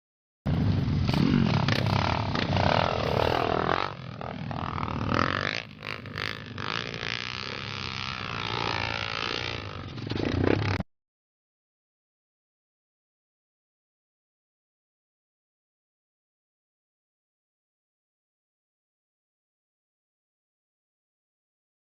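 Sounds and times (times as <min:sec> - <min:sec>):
motorcycle engines revving: 0:00.5 - 0:10.8.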